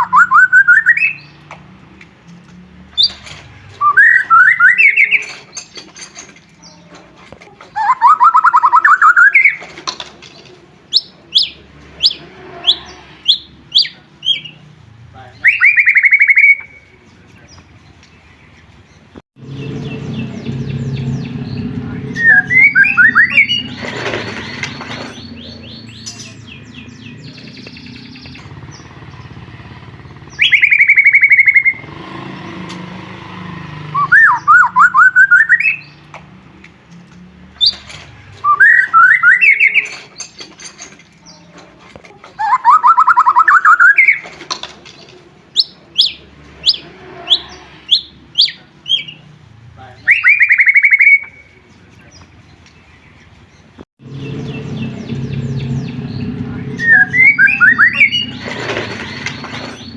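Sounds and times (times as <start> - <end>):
bird singing whistled phrases: 0.0 - 1.4, 3.8 - 5.4, 7.8 - 9.6, 15.4 - 16.9, 22.1 - 23.8, 30.3 - 31.8, 34.0 - 36.0, 38.4 - 40.0, 42.4 - 44.2, 50.0 - 51.6, 56.7 - 58.5.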